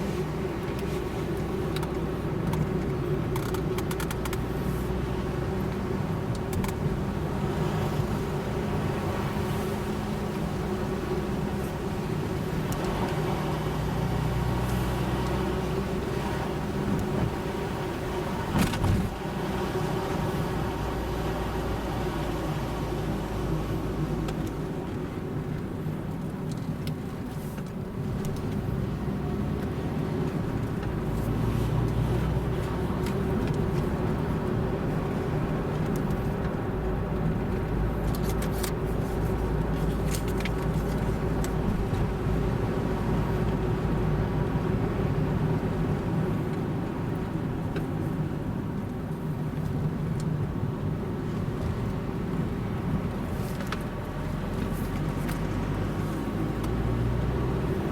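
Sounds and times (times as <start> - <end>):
car engine and tyre rumble: 0.0 - 57.9.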